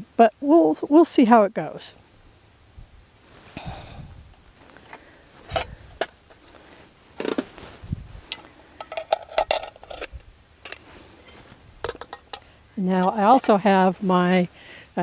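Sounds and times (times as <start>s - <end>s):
metal cookware clinking: 8.3s - 10.1s, 10.7s - 13.5s.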